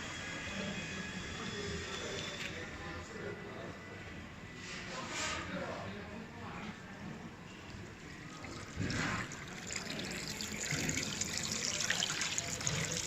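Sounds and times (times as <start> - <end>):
water splashing and trickling: 7.9 - 13.0.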